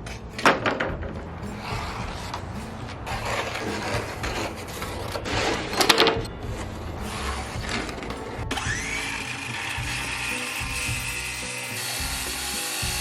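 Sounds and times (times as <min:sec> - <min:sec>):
wood rubbing and knocking: 0:00.0 - 0:11.3
power tool motor whine: 0:08.5 - 0:13.0.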